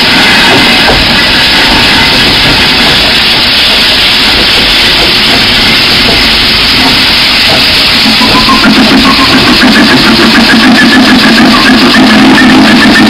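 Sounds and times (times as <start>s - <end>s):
steam train running: 0.0s - 13.0s.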